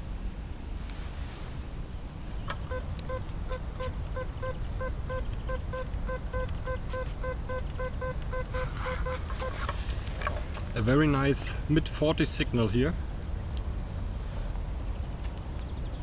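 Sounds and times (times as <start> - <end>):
metal detector beeping: 2.5 - 9.8
sharp ticks: 2.5 - 10.0.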